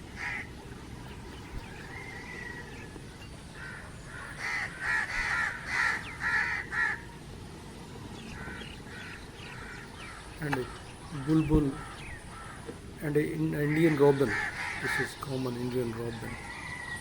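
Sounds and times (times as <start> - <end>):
bird making harsh calls: 3.6 - 7.0, 8.4 - 16.8.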